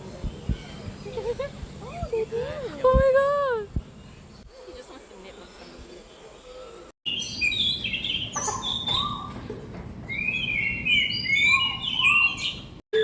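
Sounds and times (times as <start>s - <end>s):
birds chirping and whistling: 3.6s - 13.0s.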